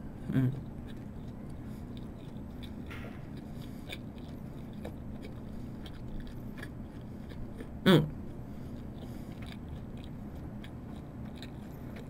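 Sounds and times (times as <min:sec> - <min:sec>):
person humming: 0:00.1 - 0:00.7, 0:07.8 - 0:08.2
wet mouth clicks chewing: 0:00.2 - 0:12.0.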